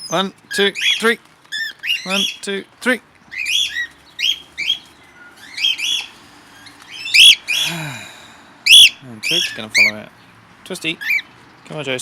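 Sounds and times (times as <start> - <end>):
parrots chirping: 0.0 - 2.4, 3.3 - 7.7, 8.6 - 10.0, 11.0 - 11.4.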